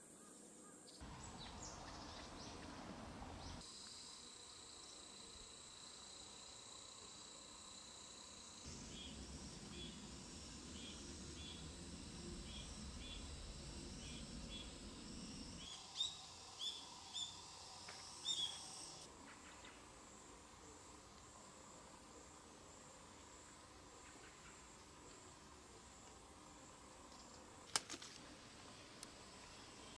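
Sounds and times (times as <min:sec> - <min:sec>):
small bird chirping: 0:18.2 - 0:19.7.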